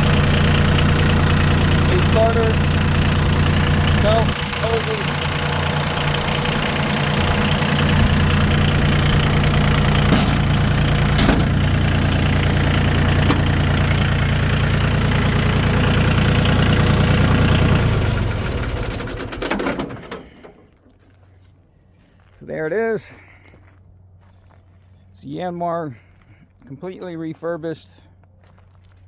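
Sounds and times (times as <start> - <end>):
tractor diesel engine running: 0.0 - 20.7.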